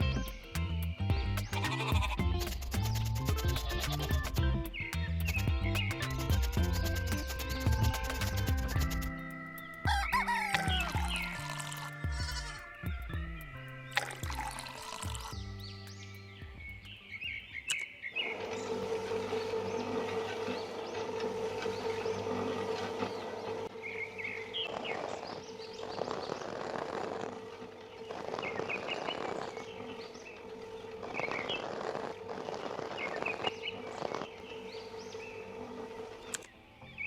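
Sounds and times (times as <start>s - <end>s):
birds chirping: 0.0s - 37.0s
steady hum: 18.2s - 36.8s.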